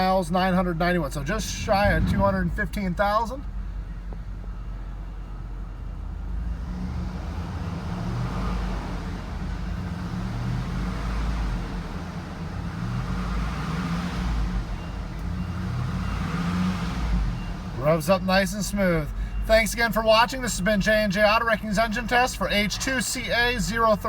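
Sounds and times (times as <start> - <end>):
car engine revving: 1.3 - 3.7.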